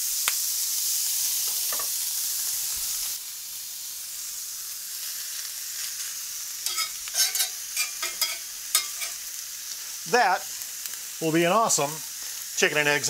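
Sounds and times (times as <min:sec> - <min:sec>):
chicken sizzling on a griddle: 0:00.0 - 0:13.0
metal spatula scraping griddle: 0:06.6 - 0:09.3.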